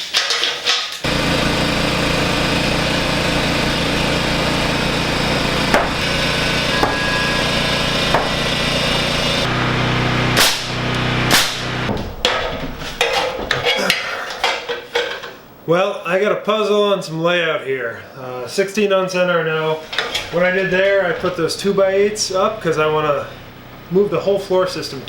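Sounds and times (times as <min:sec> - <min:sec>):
motor running: 0:01.0 - 0:12.2
sharp knocks: 0:05.7 - 0:06.1, 0:06.8 - 0:07.4, 0:08.1 - 0:08.5, 0:10.4 - 0:13.6.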